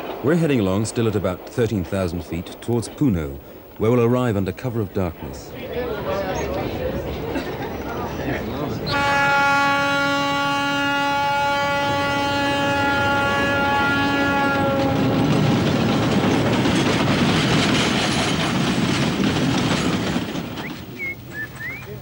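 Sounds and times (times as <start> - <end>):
train rumbling and clattering past: 0.0 - 22.0
train horn long note: 8.9 - 15.2.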